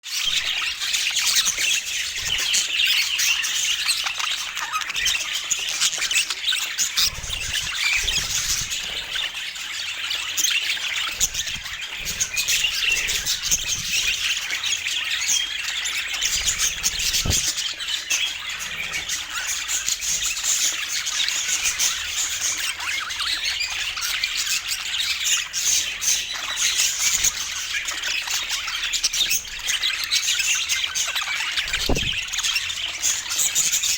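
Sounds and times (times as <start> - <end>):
birds chattering and chirping: 0.1 - 33.9
soft low thud: 31.7 - 32.4.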